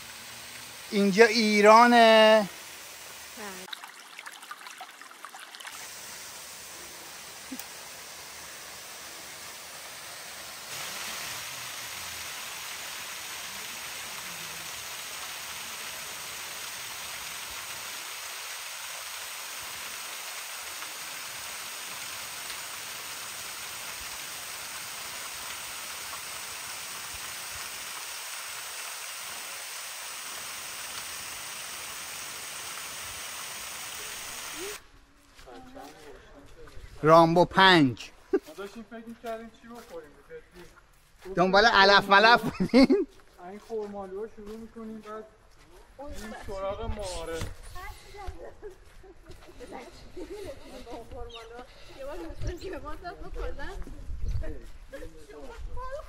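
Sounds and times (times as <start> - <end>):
stream water flowing: 0.0 - 34.8.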